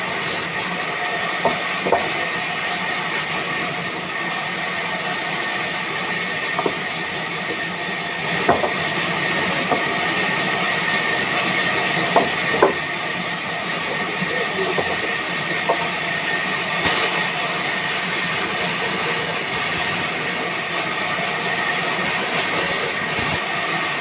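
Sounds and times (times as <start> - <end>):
sawmill machinery hissing: 0.0 - 24.0
sharp knocks: 8.4 - 8.8.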